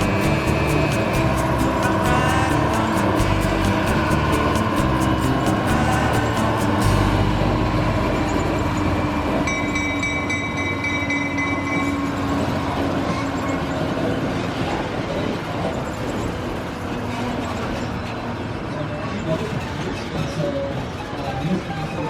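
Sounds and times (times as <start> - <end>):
high steady tone: 0.0 - 12.4
train rumbling on rails: 0.0 - 14.1.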